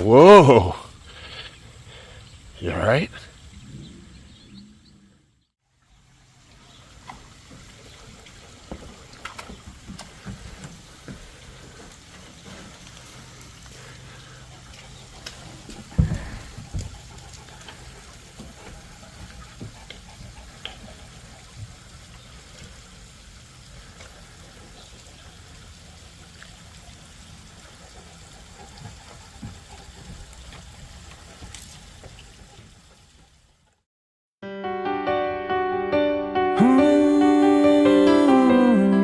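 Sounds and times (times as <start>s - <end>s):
steady rain falling: 0.0s - 3.5s, 5.7s - 33.8s
small ticks: 11.8s - 22.9s.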